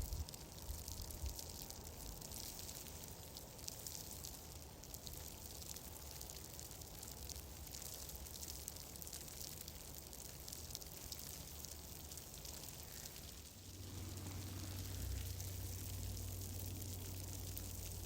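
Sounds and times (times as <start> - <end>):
fireplace fire crackling: 0.0 - 18.0
soft hiss: 0.0 - 18.0
low rumble: 13.6 - 18.0.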